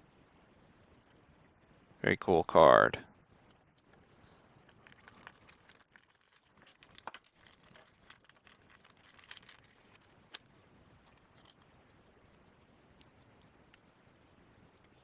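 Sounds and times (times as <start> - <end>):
plastic sleeve crinkling: 4.7 - 11.7.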